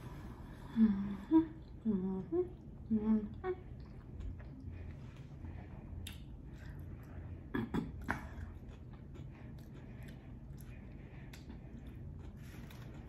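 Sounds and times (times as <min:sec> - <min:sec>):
person chewing: 0:03.7 - 0:13.0
throat or mouth sounds: 0:07.5 - 0:08.9.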